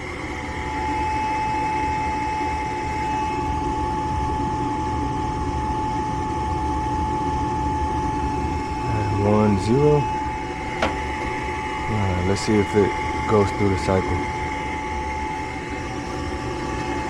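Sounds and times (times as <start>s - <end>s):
furnace motor whining: 0.0s - 17.0s.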